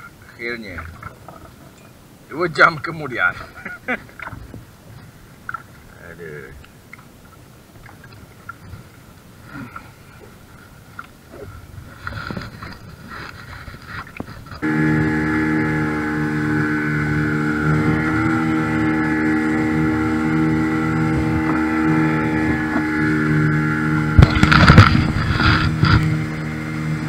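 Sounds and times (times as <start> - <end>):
boat engine running: 4.2 - 27.0
loud thumps: 24.0 - 26.0.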